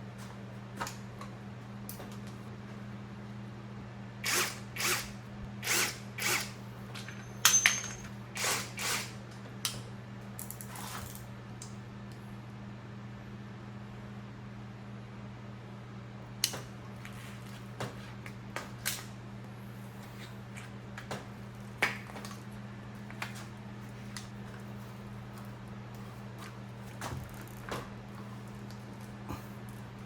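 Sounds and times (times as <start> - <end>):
steady low hum: 0.0 - 30.0
hand tools clinking on metal parts: 7.0 - 8.1.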